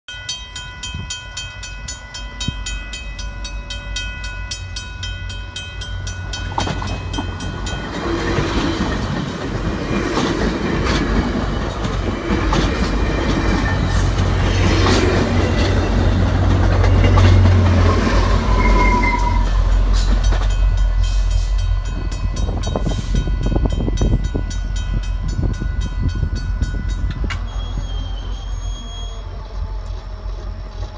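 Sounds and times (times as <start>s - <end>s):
crossing warning bell ringing: 0.1s - 30.9s
diesel locomotive engine rumbling: 0.5s - 30.9s
train wheels clattering on rails: 6.1s - 30.9s.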